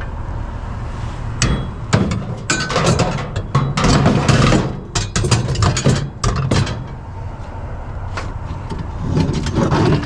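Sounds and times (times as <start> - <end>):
low background rumble: 0.0 - 10.0
scrap items clattering and knocking: 1.6 - 7.0, 8.2 - 10.0.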